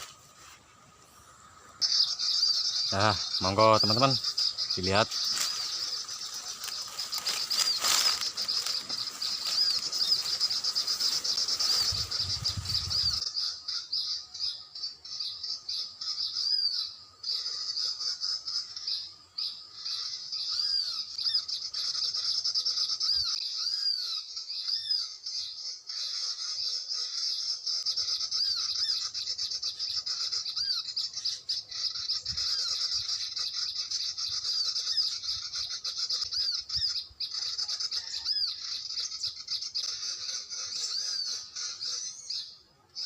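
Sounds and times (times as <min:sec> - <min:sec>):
recorded bird chirps: 0:00.0 - 0:43.0
rustling noise: 0:05.1 - 0:13.2.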